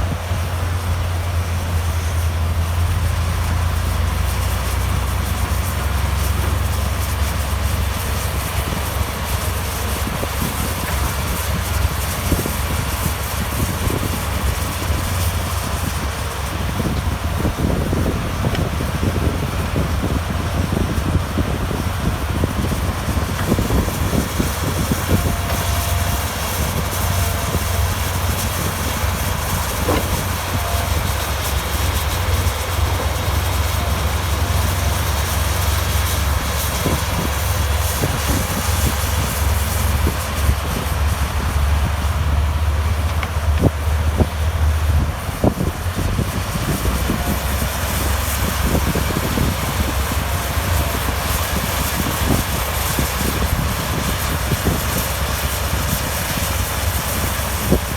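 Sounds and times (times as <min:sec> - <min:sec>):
diesel engine droning: 0:00.0 - 0:57.9
machine knocks and clanks: 0:28.4 - 0:35.0.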